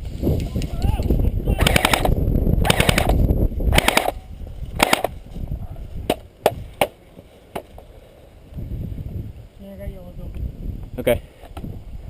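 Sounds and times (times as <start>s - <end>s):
airsoft rifle bursts: 1.6s - 4.2s, 4.8s - 5.2s.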